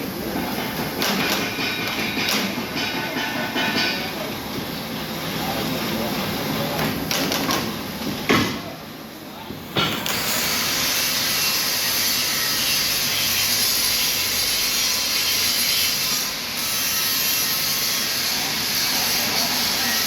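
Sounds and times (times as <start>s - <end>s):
power tool grinding: 10.0s - 20.0s.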